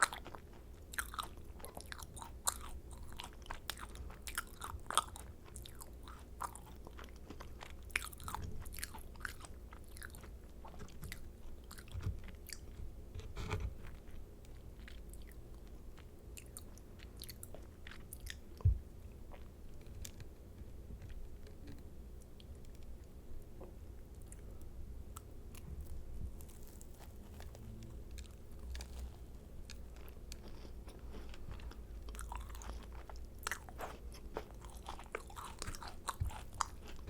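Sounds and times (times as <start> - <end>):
soft moist chewing: 0.0 - 37.0
crisp shell crackles: 25.8 - 31.4.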